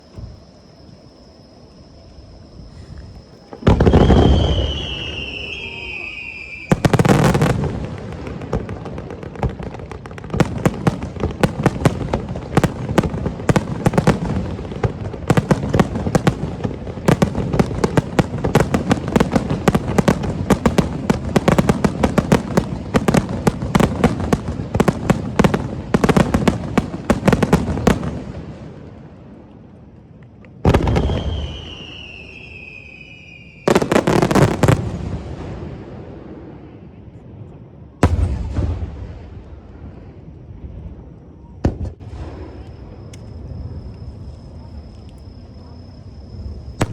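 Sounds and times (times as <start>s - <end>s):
firework whistling: 2.5s - 28.5s, 30.7s - 35.8s, 41.4s - 44.5s, 45.4s - 46.9s
fireworks bangs: 3.1s - 29.2s, 30.6s - 40.9s, 41.6s - 43.8s, 46.6s - 46.9s.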